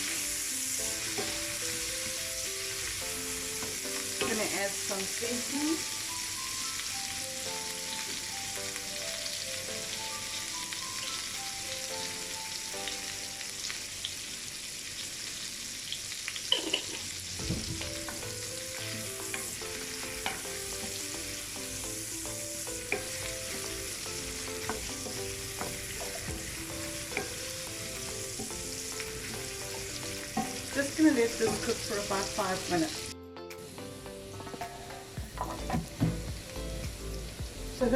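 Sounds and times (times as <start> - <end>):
vegetables sizzling in a frying pan: 0.0 - 34.0, 34.8 - 37.9
spoon knocking against pan: 20.2 - 21.0, 29.7 - 30.7, 31.4 - 31.9.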